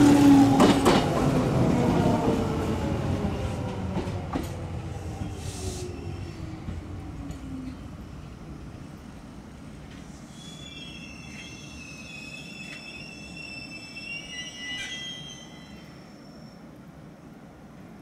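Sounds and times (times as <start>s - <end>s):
electric train rumbling: 0.0s - 18.0s
train brakes squealing: 9.9s - 16.8s.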